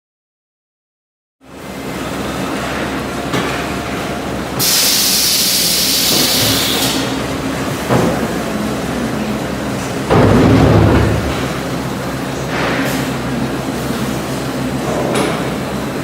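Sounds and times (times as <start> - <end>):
loud hiss: 4.6 - 7.2
machine humming: 6.4 - 12.4.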